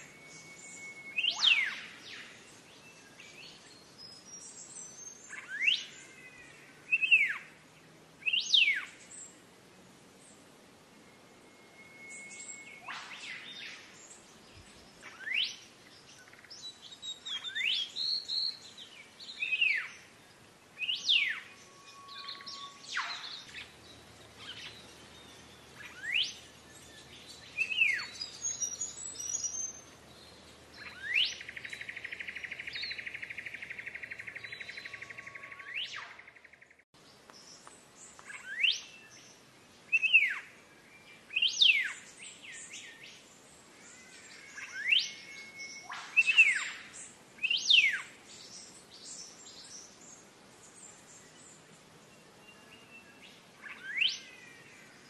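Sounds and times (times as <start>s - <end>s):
bird whistling sharp notes: 0.0s - 2.3s, 11.5s - 13.8s, 20.8s - 23.7s, 44.6s - 48.0s.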